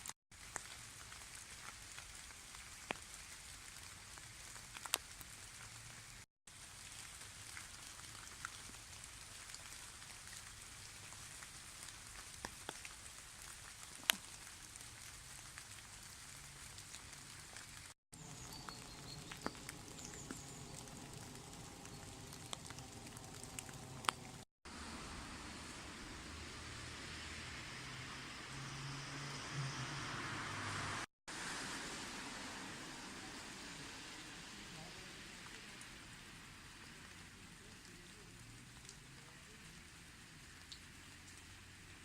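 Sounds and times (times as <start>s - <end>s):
drops ticking on leaves: 0.0s - 24.4s, 36.7s - 41.5s
light drizzle patter: 0.0s - 27.6s, 31.0s - 42.0s.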